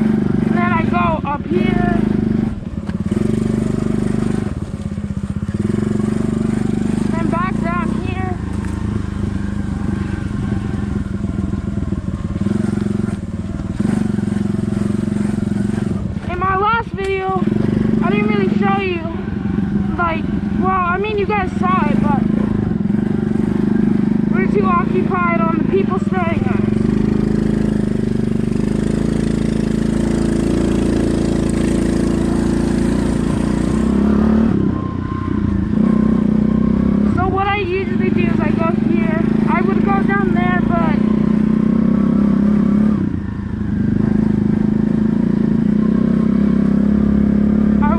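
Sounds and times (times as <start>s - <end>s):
small motorbike engine running: 0.0s - 47.9s.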